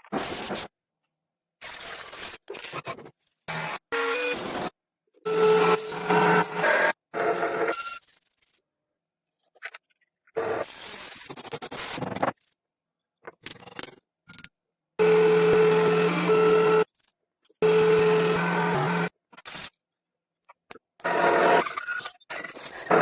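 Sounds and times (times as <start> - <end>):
power tool scraping metal: 15.0 - 16.9, 17.6 - 19.1.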